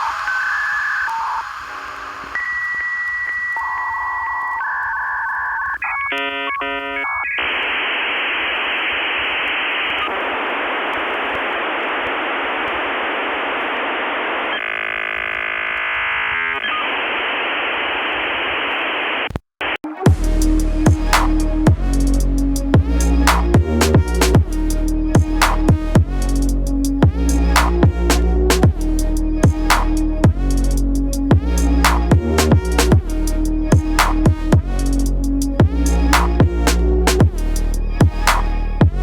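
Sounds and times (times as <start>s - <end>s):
dial-up modem tones: 0.0s - 19.8s
dialing beeps: 2.4s - 7.6s.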